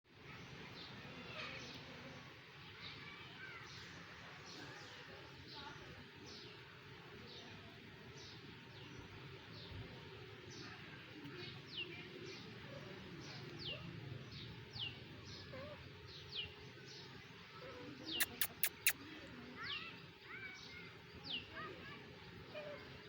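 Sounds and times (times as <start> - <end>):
sharp clicks: 18.2 - 19.0.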